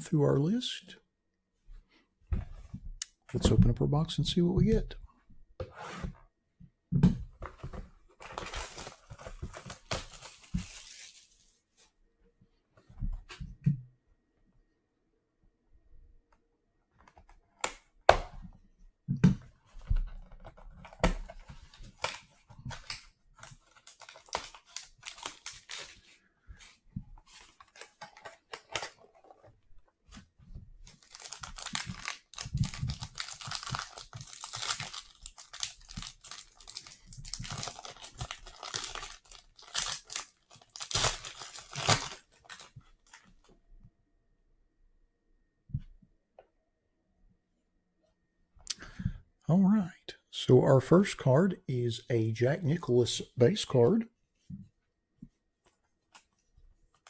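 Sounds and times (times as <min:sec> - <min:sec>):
plastic wrapper tearing: 0:21.9 - 0:26.0, 0:30.8 - 0:43.3.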